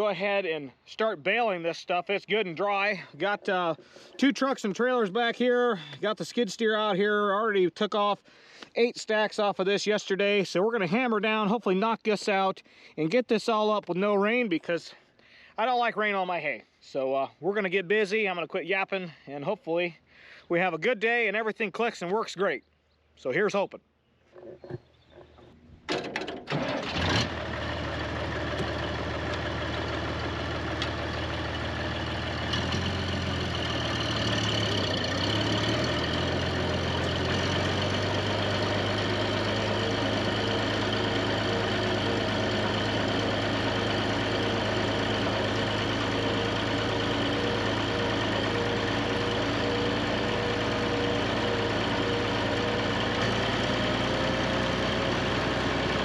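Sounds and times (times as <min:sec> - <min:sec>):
tractor diesel engine: 0:00.0 - 0:07.3, 0:25.9 - 0:56.0.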